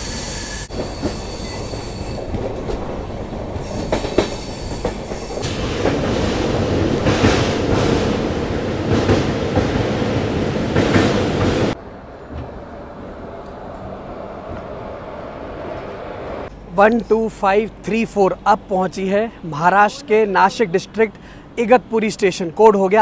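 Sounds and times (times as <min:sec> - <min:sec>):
train rumble: 0:00.0 - 0:22.2
wheels clacking over rail joints: 0:00.7 - 0:17.1.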